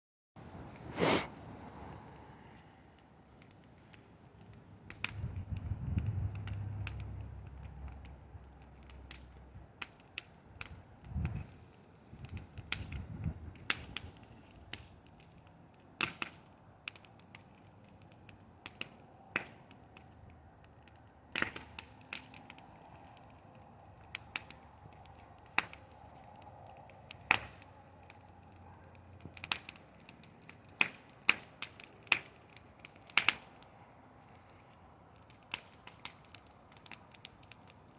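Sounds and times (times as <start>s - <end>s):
bonfire crackling and popping: 0.4s - 37.9s
low rumble: 5.1s - 8.6s.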